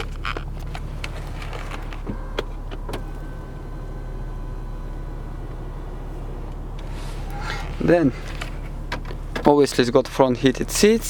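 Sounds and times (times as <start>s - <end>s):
low cabin hum: 0.0s - 11.0s
electric motor whine: 1.3s - 7.8s.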